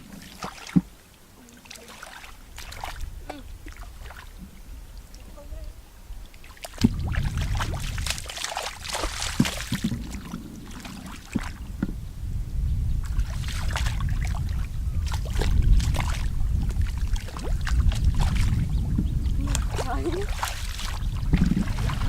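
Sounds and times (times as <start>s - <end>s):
water splashing and sloshing: 0.0s - 12.0s, 12.8s - 22.0s
low steady rumble: 0.0s - 22.0s.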